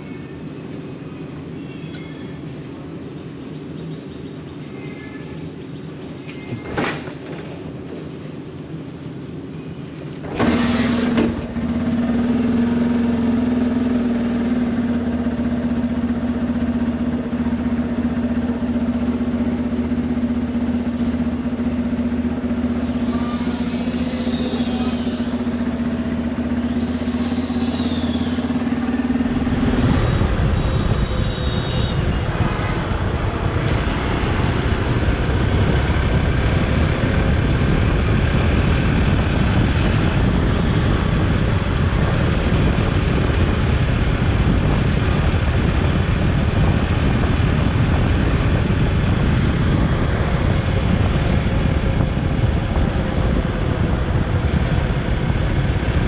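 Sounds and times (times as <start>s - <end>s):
motorcycle engine hum: 0.0s - 56.0s
wind buffeting microphone: 20.6s - 56.0s.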